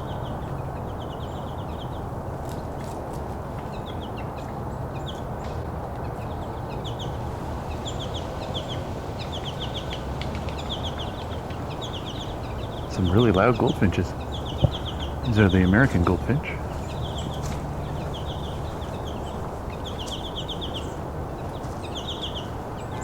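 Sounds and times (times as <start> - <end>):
goldfinches calling: 6.0 - 23.0.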